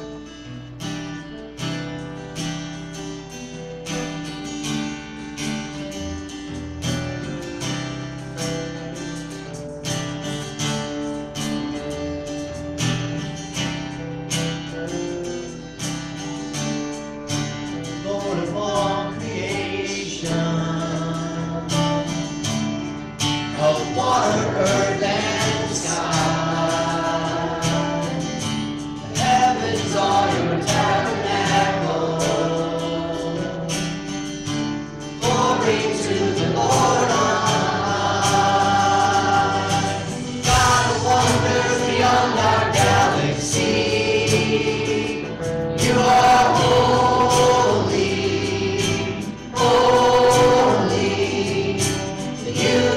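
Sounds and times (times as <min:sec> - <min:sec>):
choir singing a hymn: 0:18.0 - 0:22.6, 0:23.5 - 0:52.9
instrumental accompaniment: 0:21.8 - 0:52.9.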